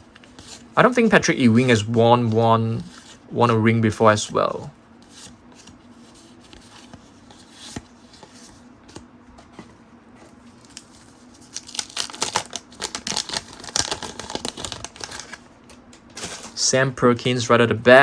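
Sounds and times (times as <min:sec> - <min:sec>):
wax paper wrapper tearing: 0:10.6 - 0:15.4.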